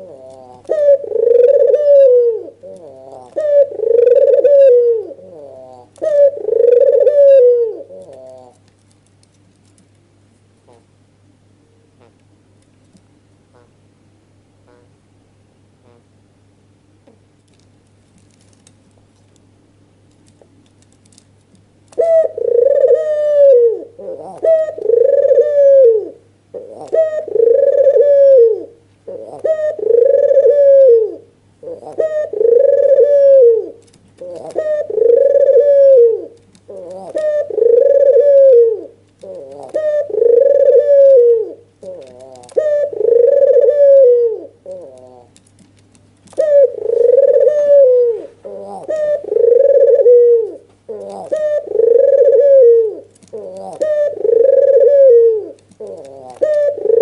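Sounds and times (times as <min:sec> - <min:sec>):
dove cooing: 0:00.0 - 0:08.6, 0:21.9 - 0:45.5, 0:46.3 - 0:57.0.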